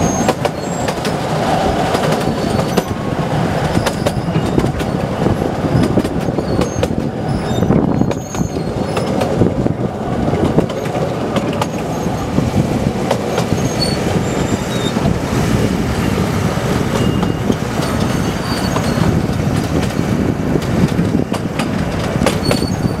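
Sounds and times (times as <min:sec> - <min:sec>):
high wheel squeals: 0:00.0 - 0:01.0, 0:02.2 - 0:03.0, 0:03.6 - 0:09.3, 0:11.6 - 0:12.4, 0:13.3 - 0:15.1, 0:16.9 - 0:20.3, 0:22.3 - 0:23.0
train wheels rumbling and rattling: 0:00.0 - 0:23.0.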